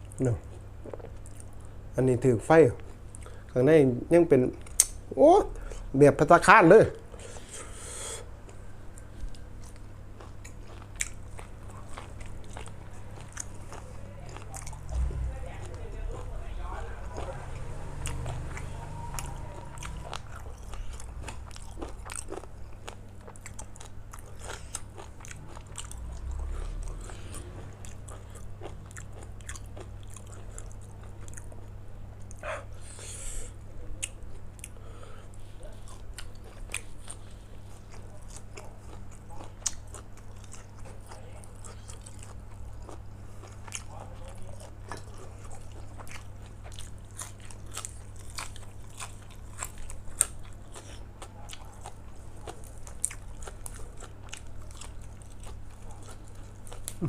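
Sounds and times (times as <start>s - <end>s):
person chewing crunchy food: 0.0s - 1.8s, 7.1s - 57.0s
steady low hum: 0.0s - 57.0s.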